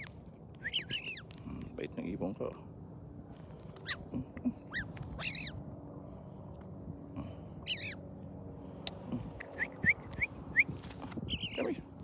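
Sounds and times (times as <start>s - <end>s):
bird calls: 0.0s - 1.4s, 3.8s - 4.1s, 4.7s - 5.6s, 7.6s - 8.0s, 9.4s - 11.8s.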